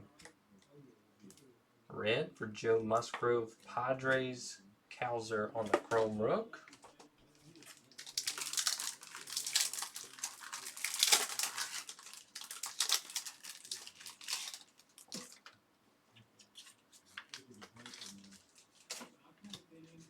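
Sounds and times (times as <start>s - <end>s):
foil wrapper crinkling and tearing: 7.4s - 15.5s, 16.6s - 19.1s.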